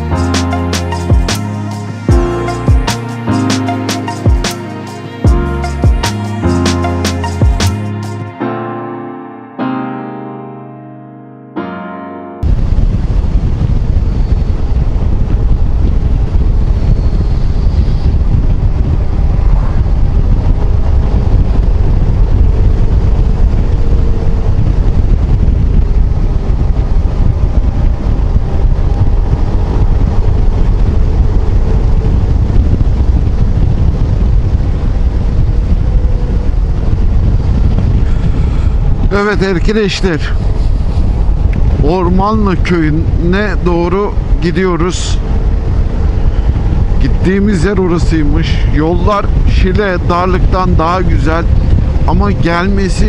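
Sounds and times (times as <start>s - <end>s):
wind buffeting microphone: 12.4s - 53.0s.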